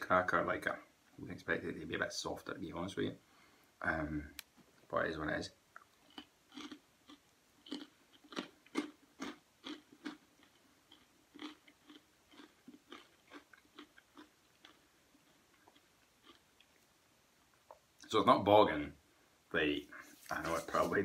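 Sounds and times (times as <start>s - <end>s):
person chewing crunchy cracker: 5.7s - 17.0s.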